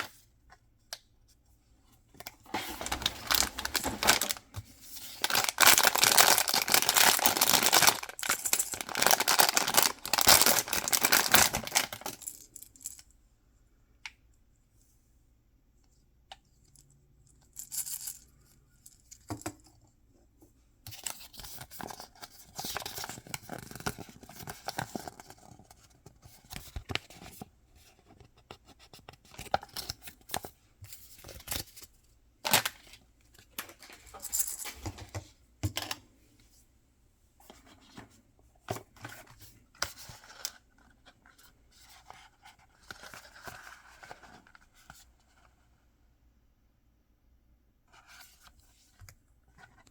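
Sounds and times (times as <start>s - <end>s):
packaging tearing and crinkling: 2.7s - 4.4s, 5.2s - 12.2s.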